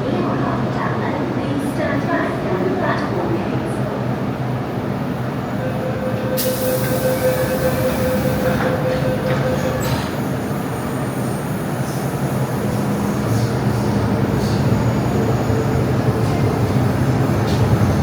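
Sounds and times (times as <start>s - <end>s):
train motors and wheels on rails: 4.4s - 18.0s
held tone: 5.6s - 10.0s.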